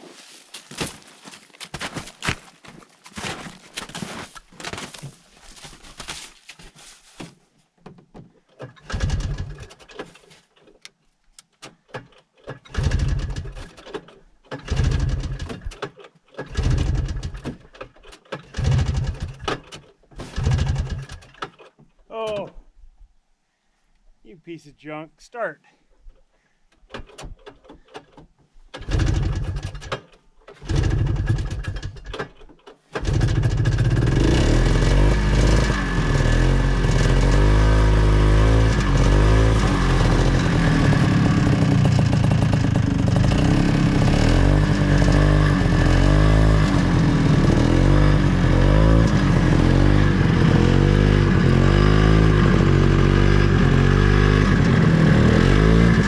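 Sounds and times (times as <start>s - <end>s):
snowmobile engine starting: 8.4s - 10.9s, 11.6s - 22.4s, 26.9s - 56.0s.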